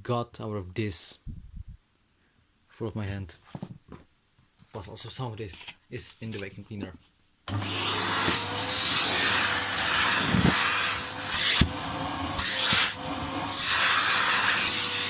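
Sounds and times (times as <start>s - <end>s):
vacuum cleaner running: 7.5s - 15.0s.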